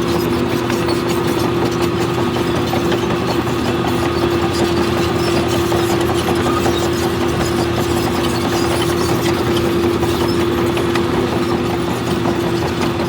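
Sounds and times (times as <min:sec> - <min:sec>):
constant machine whine: 0:00.0 - 0:13.0
diesel engine of heavy machine: 0:00.0 - 0:13.0.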